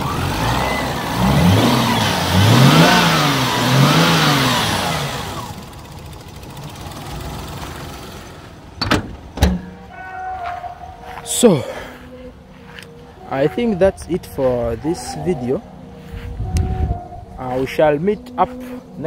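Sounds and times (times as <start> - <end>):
car engine revving: 0.0 - 8.8
car engine idling: 0.0 - 9.9.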